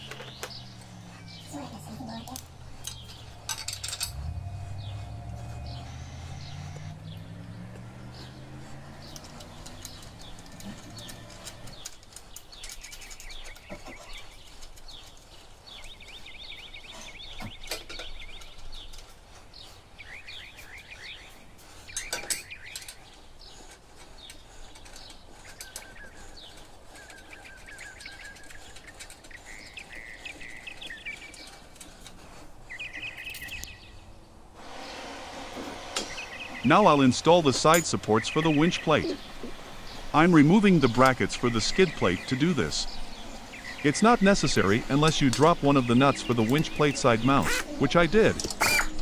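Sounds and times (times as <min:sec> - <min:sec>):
low hum: 0:00.0 - 0:11.8
small birds chirping: 0:00.0 - 0:35.0, 0:36.0 - 0:49.0
tools clicking and knocking: 0:02.4 - 0:04.7, 0:08.8 - 0:15.3, 0:21.8 - 0:32.2, 0:48.1 - 0:49.0.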